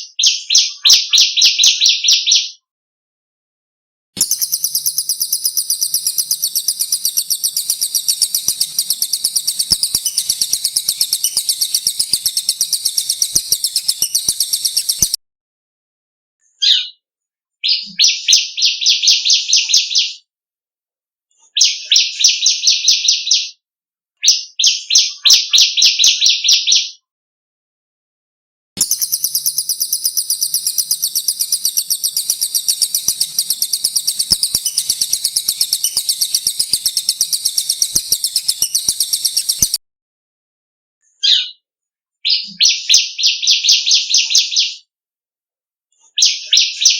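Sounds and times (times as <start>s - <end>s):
high rapid rolling bird trill: 4.2s - 15.2s, 28.8s - 39.8s
songbirds chattering trills: 4.2s - 15.2s, 28.8s - 39.8s.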